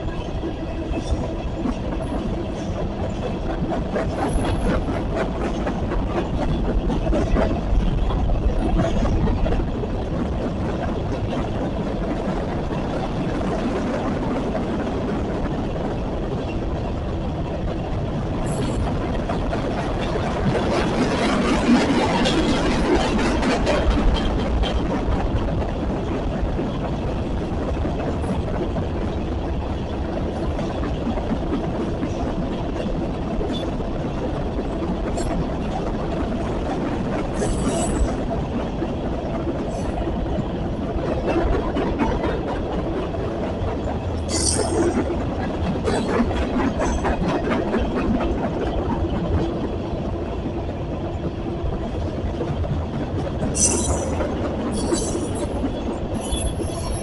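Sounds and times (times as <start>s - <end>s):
freight train wheels rumbling: 0.0s - 57.0s
high-pitched wheel squeals: 53.6s - 55.5s, 56.2s - 57.0s.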